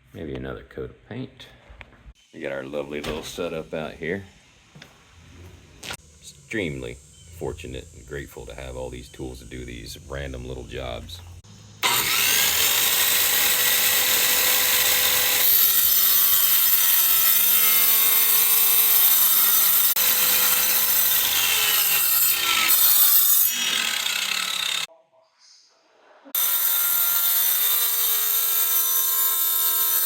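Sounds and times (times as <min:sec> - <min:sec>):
electric saw cutting tile: 0:11.8 - 0:24.9, 0:26.3 - 0:30.0.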